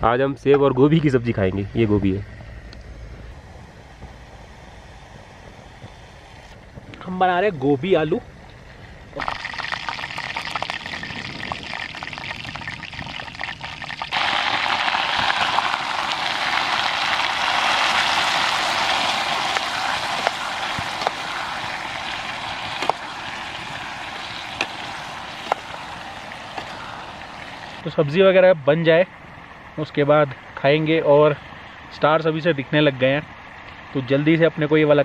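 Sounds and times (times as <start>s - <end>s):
oil sizzling in pot: 9.2s - 27.8s.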